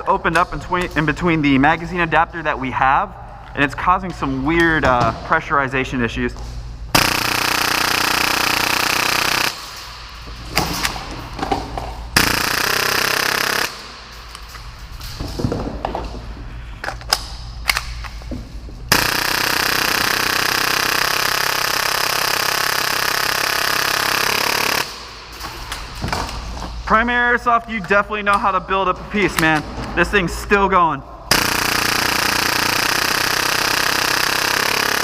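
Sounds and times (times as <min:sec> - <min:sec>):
airsoft pistol firing bursts: 0:07.0 - 0:09.8, 0:12.2 - 0:14.0, 0:18.9 - 0:25.0, 0:31.3 - 0:35.0.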